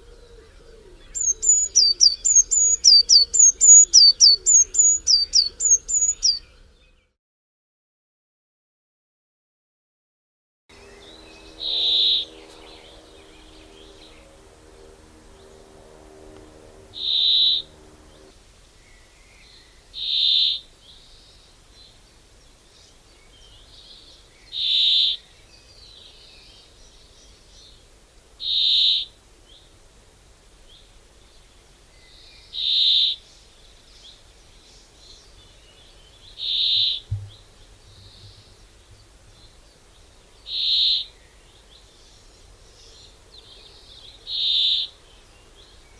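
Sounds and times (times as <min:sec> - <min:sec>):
faint outdoor background noise: 0:00.0 - 0:07.2, 0:10.7 - 0:45.9
low steady hum: 0:10.7 - 0:19.9, 0:37.0 - 0:40.5
low thump: 0:37.1 - 0:38.4.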